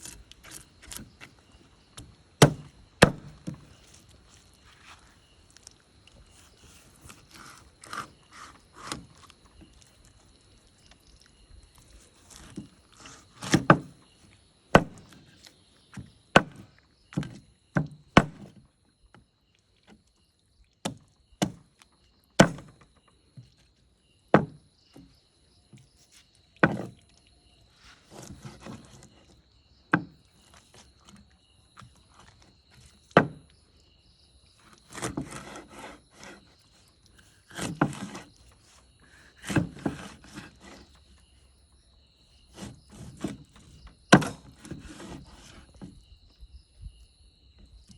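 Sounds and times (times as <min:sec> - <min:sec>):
knife chopping fish on wood: 0:02.0 - 0:03.7, 0:14.8 - 0:15.2, 0:15.9 - 0:18.6, 0:20.8 - 0:21.6, 0:22.4 - 0:22.8, 0:37.5 - 0:38.2, 0:39.4 - 0:40.8, 0:44.1 - 0:45.2
scraping and handling: 0:27.8 - 0:29.4, 0:34.6 - 0:41.1.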